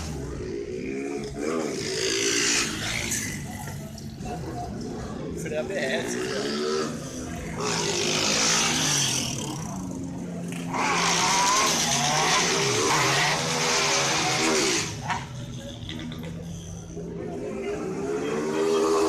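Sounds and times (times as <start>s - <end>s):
tyres squealing and skidding: 10.5s - 19.0s
car engine revving hard: 10.7s - 15.0s.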